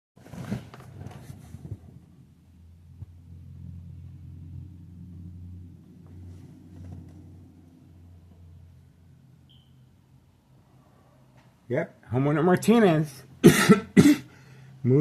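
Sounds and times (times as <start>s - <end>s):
handling noise of recording device: 0.2s - 2.2s, 5.8s - 7.6s
car engine running: 2.5s - 9.0s.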